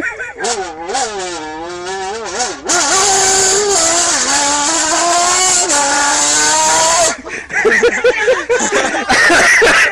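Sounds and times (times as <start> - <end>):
man imitating motorbike: 0.0 - 7.2.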